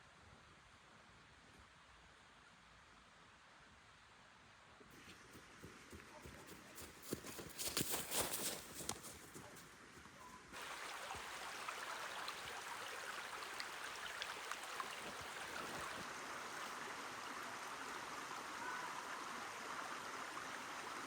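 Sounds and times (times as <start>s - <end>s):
water running: 10.6s - 21.0s.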